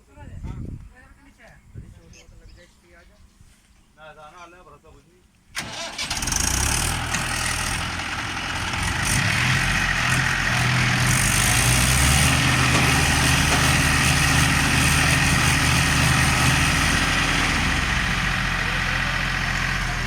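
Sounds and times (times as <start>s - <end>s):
tractor engine running: 5.6s - 20.0s.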